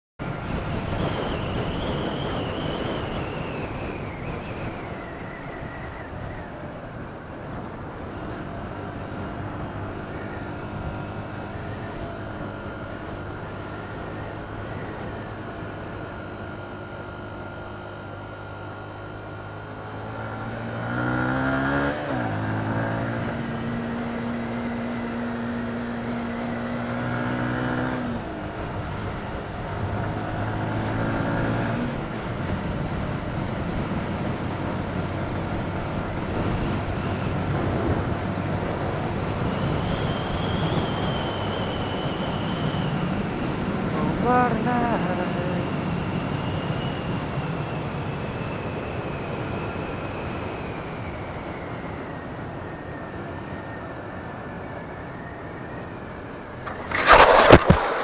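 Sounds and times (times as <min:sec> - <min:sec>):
wind noise: 0:00.2 - 0:15.9, 0:27.0 - 0:58.0
motorcycle engine shifting gears: 0:18.0 - 0:45.7, 0:56.5 - 0:58.0.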